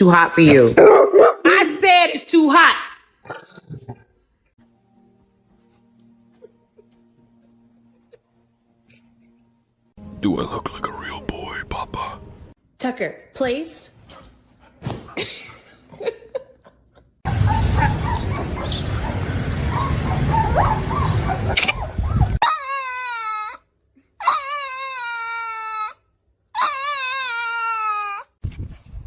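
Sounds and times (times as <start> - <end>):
loud rushing noise: 17.3 - 22.4
dog crying: 17.3 - 23.6, 24.2 - 28.3.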